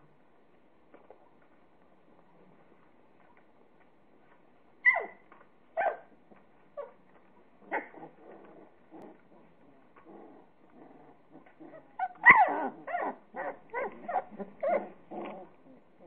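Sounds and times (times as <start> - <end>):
puppies yipping: 4.8 - 6.1, 11.4 - 15.3
puppies whimpering: 11.3 - 15.8.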